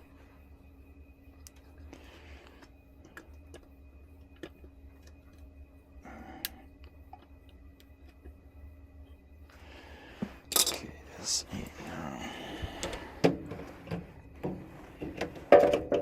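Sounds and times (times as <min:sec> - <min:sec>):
steady low hum: 0:00.0 - 0:16.0
small metal parts clicking: 0:10.5 - 0:10.9.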